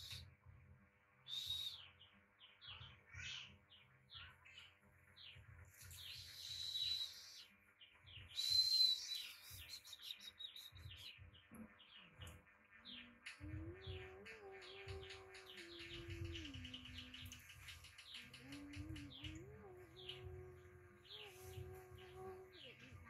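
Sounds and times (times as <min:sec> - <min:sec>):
small birds chirping: 0:00.0 - 0:00.4, 0:01.2 - 0:23.0
buzzing bird calls: 0:13.0 - 0:23.0.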